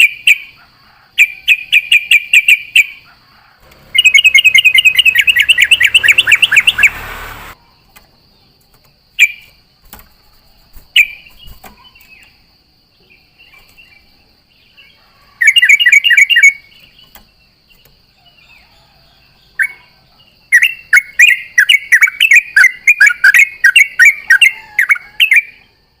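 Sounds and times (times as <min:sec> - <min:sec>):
bird chattering song: 0:00.0 - 0:07.6, 0:10.9 - 0:12.4, 0:13.0 - 0:18.6, 0:19.4 - 0:25.7
faint high whine: 0:03.6 - 0:07.7.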